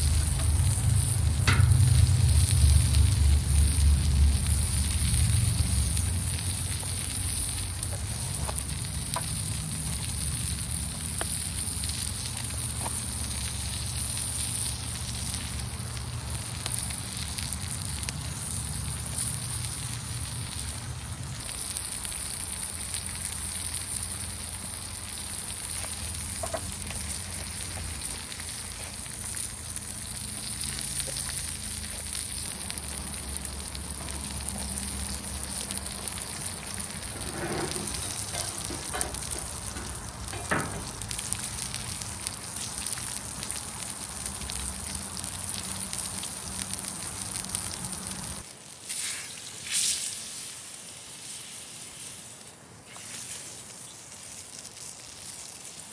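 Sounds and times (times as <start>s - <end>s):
campfire crackling and popping: 0.0s - 55.9s
food sizzling in a pan: 0.0s - 55.9s.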